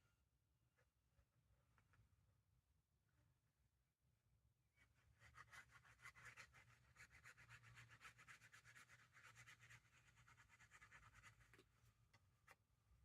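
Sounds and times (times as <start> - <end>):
paper rubbing and scratching: 5.1 - 11.6.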